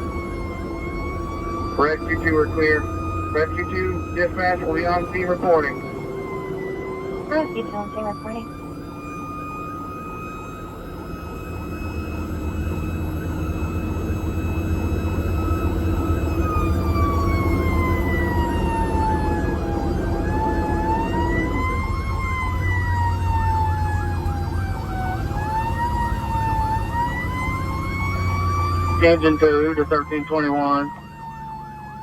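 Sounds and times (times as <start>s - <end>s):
fire truck siren wailing: 0.0s - 32.0s.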